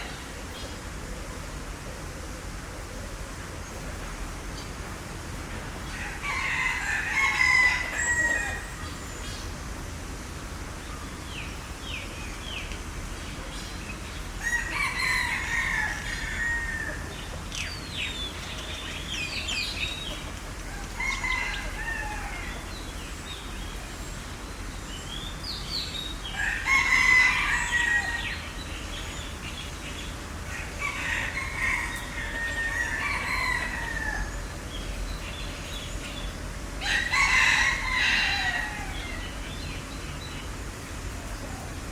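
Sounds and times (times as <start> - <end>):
small birds chirping: 10.7 - 41.9.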